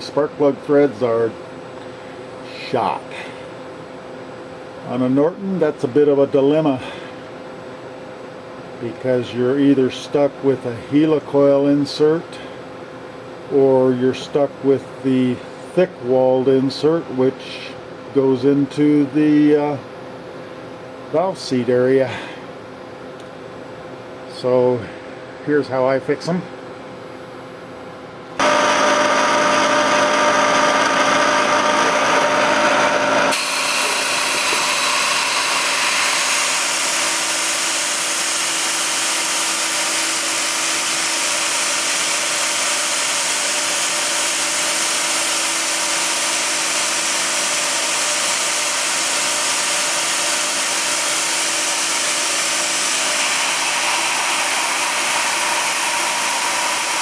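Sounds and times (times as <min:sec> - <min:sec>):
power tool motor running: 0:28.4 - 0:57.0.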